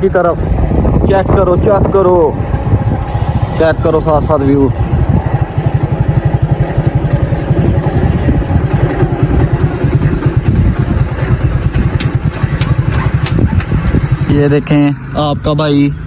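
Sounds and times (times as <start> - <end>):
motorcycle engine running: 2.3 - 14.6.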